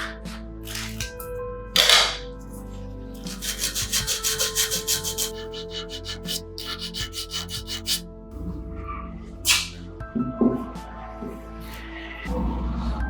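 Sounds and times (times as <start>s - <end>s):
hand scraping rusty metal tank: 3.2s - 8.0s.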